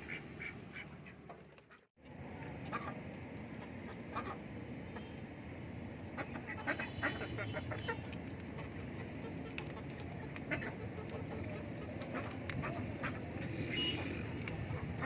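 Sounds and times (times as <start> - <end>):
birds pecking taps: 7.7 - 13.2.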